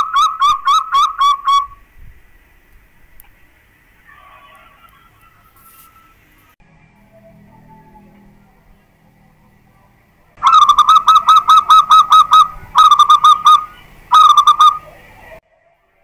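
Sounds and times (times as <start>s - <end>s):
dove cooing: 10.4s - 15.4s.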